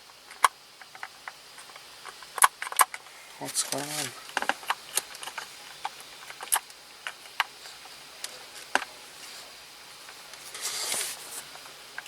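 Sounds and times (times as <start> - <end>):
plastic parts clicking and tapping: 0.1 - 3.1, 3.7 - 8.9
brief rustle: 10.4 - 11.6.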